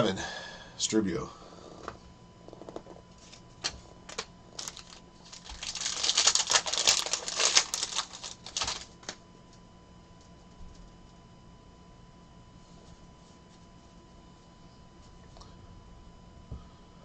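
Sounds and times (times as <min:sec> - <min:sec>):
trading cards clicking and rustling: 0:03.2 - 0:09.2.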